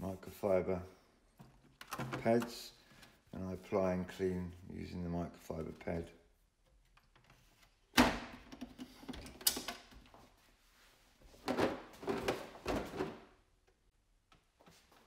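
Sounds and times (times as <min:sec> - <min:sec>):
plastic boxes rattling: 0:11.4 - 0:13.3.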